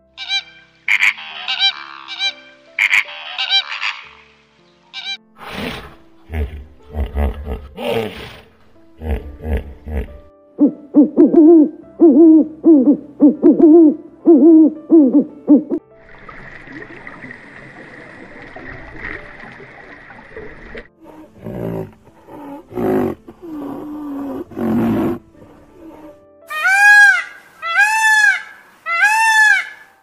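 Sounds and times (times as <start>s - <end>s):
hippopotamus honking: 0.3s - 4.3s, 21.0s - 29.8s
animal snorts: 5.4s - 10.3s, 21.0s - 26.2s.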